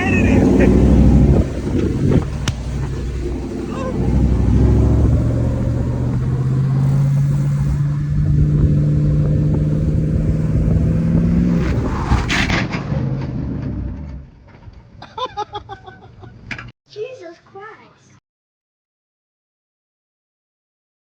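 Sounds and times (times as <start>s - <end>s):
sharp cracks: 0.0s - 13.5s
vehicle engine revving hard: 0.0s - 14.2s.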